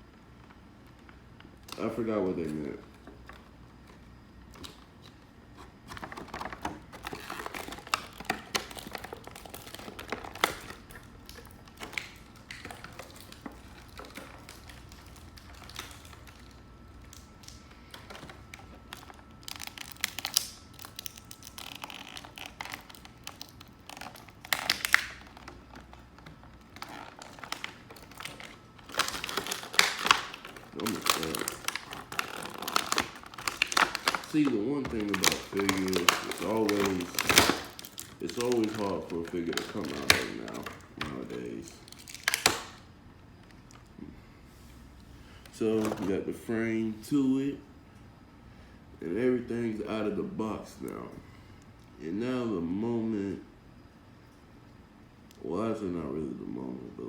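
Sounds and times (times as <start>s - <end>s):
plastic and cardboard crinkling: 0.5s - 42.8s, 45.4s - 46.4s.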